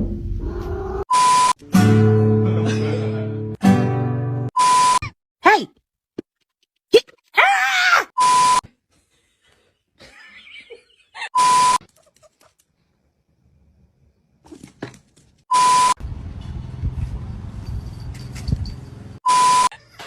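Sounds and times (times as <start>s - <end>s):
short electronic beeps: 1.1s - 1.6s, 4.6s - 5.2s, 8.2s - 8.6s, 11.4s - 11.8s, 15.5s - 16.0s, 19.2s - 19.7s.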